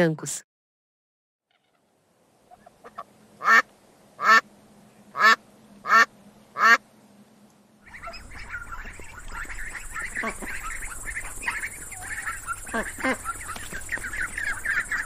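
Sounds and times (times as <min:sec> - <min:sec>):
farm waterfowl calling: 0:02.5 - 0:04.5, 0:05.1 - 0:06.8, 0:07.8 - 0:15.0.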